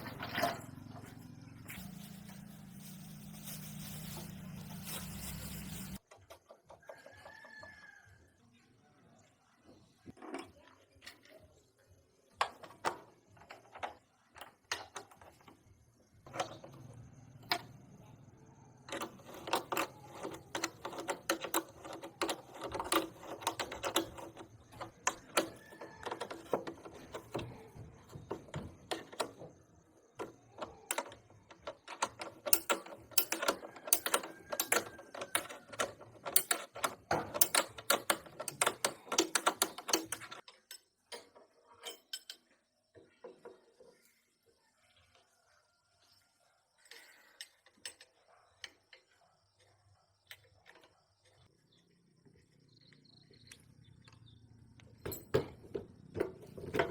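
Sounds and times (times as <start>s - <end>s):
hand tools clicking on metal: 18.9s - 29.5s, 30.2s - 42.4s.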